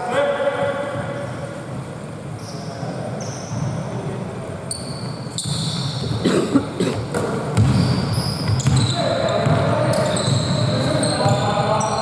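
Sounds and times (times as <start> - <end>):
sneakers squeaking on court: 2.3 - 4.0, 4.7 - 6.3, 7.0 - 12.0
basketball bouncing: 7.1 - 9.6.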